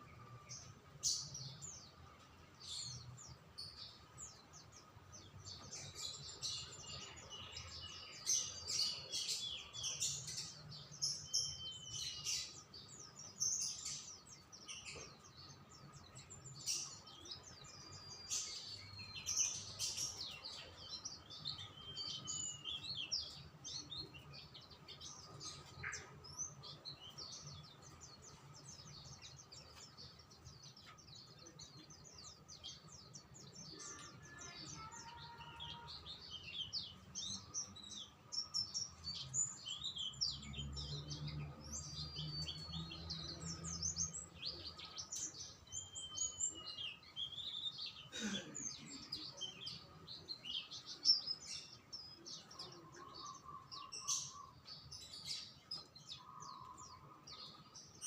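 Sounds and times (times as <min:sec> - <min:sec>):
small songbirds chirping: 0:00.0 - 0:58.0.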